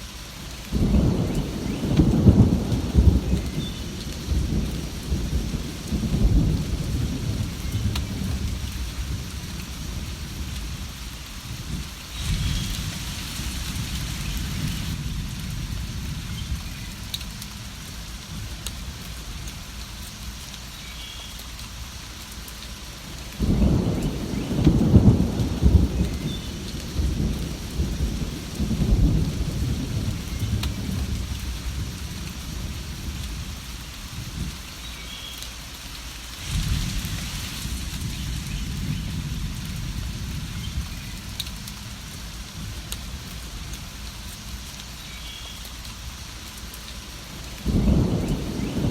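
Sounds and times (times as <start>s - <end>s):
steady rain: 0.0s - 48.9s
rolling thunder: 0.8s - 10.9s, 11.5s - 17.7s, 23.4s - 33.6s, 36.4s - 43.8s, 47.4s - 48.9s
loud thunder peal: 47.6s - 48.9s.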